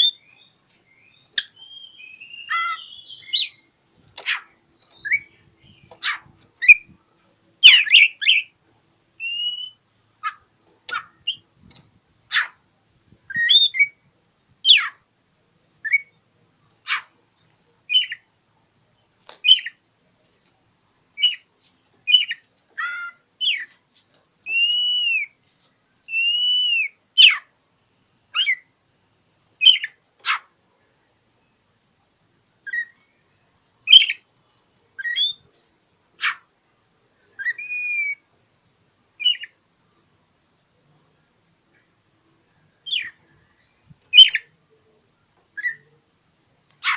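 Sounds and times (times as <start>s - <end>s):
songbird singing: 0.0s - 8.6s, 9.2s - 12.6s, 13.2s - 15.1s, 15.8s - 18.3s, 18.9s - 20.2s, 21.2s - 23.8s, 24.4s - 27.5s, 28.3s - 28.8s, 29.6s - 31.7s, 32.6s - 34.3s, 34.9s - 35.5s, 37.2s - 38.3s, 39.2s - 40.0s, 40.6s - 46.1s.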